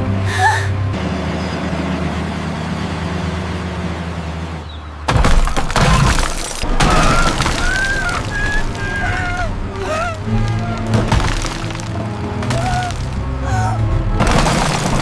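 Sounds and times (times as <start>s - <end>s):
glass shattering crash: 5.1s - 8.9s, 10.9s - 13.2s, 14.2s - 15.0s.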